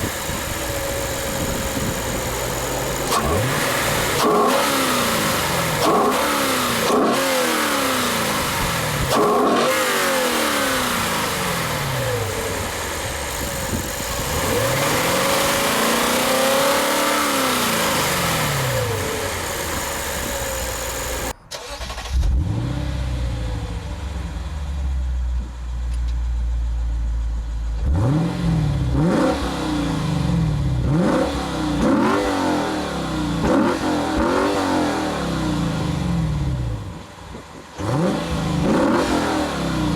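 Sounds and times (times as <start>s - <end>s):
car engine accelerating: 0.0s - 25.2s, 37.7s - 39.9s
car engine idling and revving: 0.0s - 39.9s.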